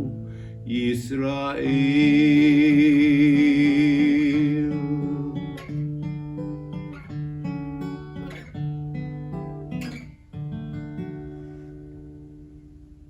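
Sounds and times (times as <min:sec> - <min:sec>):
person singing: 0:00.0 - 0:05.8
acoustic guitar picking: 0:00.0 - 0:13.0.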